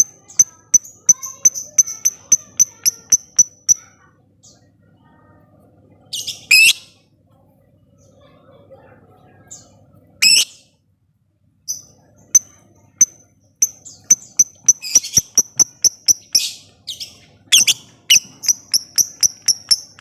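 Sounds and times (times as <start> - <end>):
lovebird ticking chirps: 0.0 - 3.8, 11.7 - 16.6, 17.5 - 20.0.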